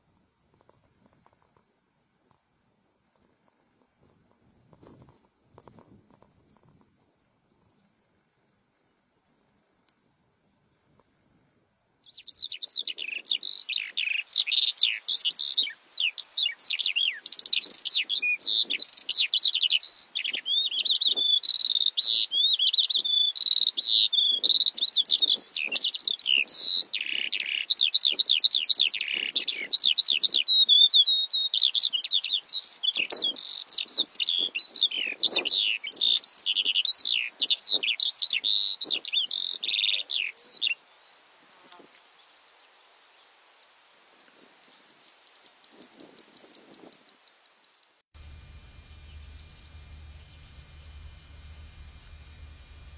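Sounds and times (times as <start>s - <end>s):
bush lark singing: 12.0s - 40.7s.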